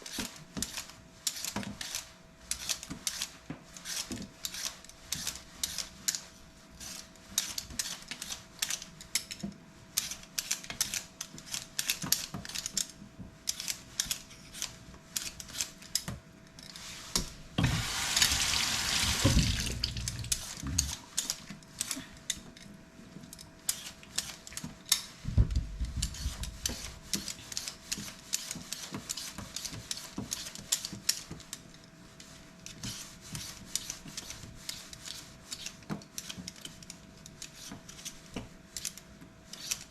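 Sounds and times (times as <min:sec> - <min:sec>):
faint steady hum: 0:12.7 - 0:28.4
water tap running: 0:17.6 - 0:20.4.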